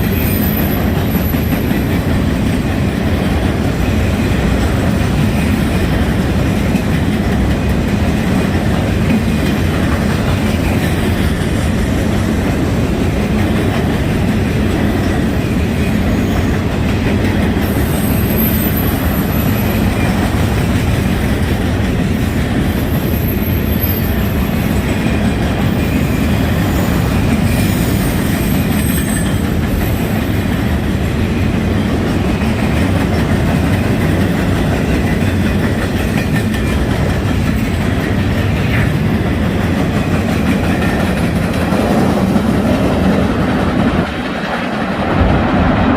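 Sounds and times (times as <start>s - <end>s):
freight train cars rumbling: 0.0s - 45.9s
wheels clacking over rail joints: 0.0s - 45.9s
high wheel squeals: 17.7s - 19.9s, 27.6s - 29.4s.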